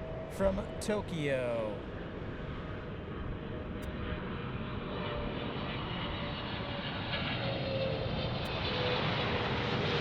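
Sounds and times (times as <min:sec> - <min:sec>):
jet engines roaring: 0:00.0 - 0:10.0.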